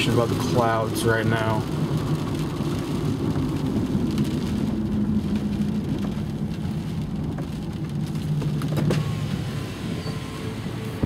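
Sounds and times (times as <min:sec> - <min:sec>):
car idling hum: 0:00.0 - 0:11.0
rain pattering on a car: 0:00.0 - 0:11.0.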